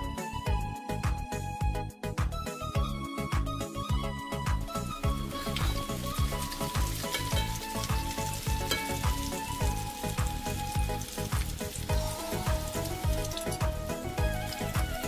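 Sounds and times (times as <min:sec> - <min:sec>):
background music with steady beat: 0:00.0 - 0:15.0
food sizzling in a pan: 0:05.0 - 0:15.0.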